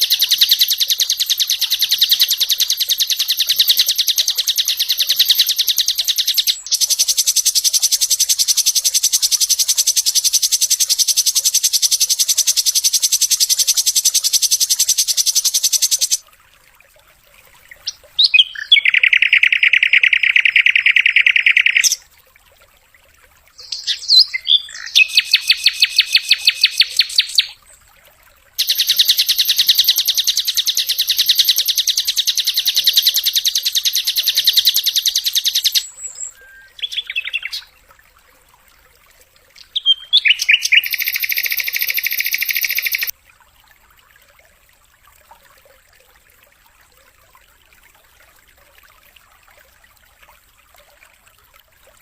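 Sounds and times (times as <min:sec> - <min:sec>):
bird singing fast trills: 0:00.0 - 0:16.2, 0:17.8 - 0:22.0, 0:23.6 - 0:27.6, 0:28.6 - 0:37.7, 0:39.6 - 0:43.1.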